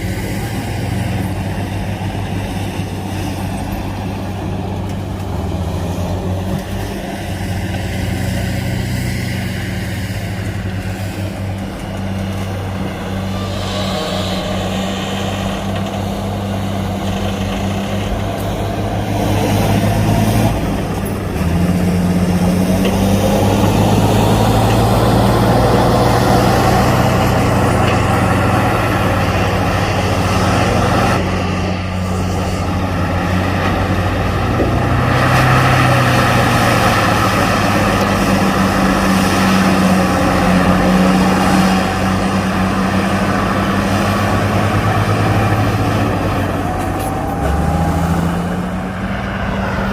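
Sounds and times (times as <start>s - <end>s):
diesel machinery engine drone: 0.0s - 49.9s.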